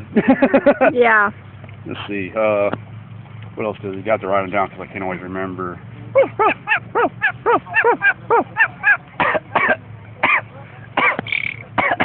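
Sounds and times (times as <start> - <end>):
parrot squawking: 6.3 - 9.0.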